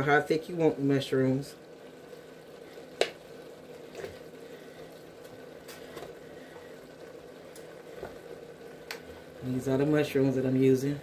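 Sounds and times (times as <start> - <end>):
faint hiss and hum: 0.0 - 11.0.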